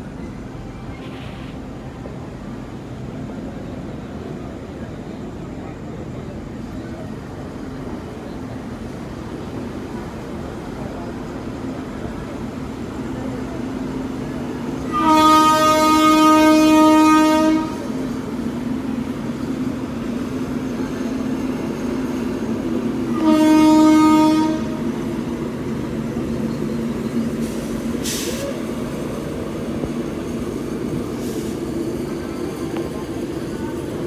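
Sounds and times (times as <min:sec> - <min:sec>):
train rumbling on track: 0:00.0 - 0:34.0
locomotive horn blasts: 0:14.8 - 0:18.1, 0:23.0 - 0:25.0.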